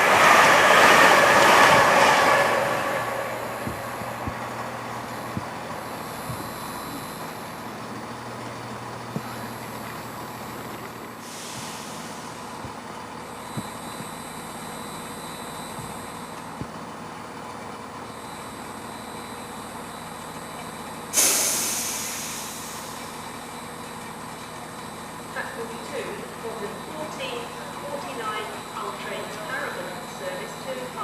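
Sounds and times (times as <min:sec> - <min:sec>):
railway station background: 0:00.0 - 0:31.0
high-pitched electrical buzz: 0:01.1 - 0:08.4
hiss of released air: 0:11.2 - 0:12.4, 0:21.2 - 0:23.0.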